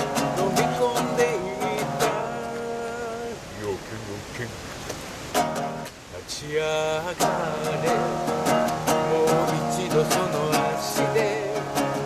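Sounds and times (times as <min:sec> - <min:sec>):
acoustic guitar strumming: 0:00.0 - 0:03.4, 0:05.3 - 0:12.0
person singing: 0:00.0 - 0:03.5, 0:06.3 - 0:12.0.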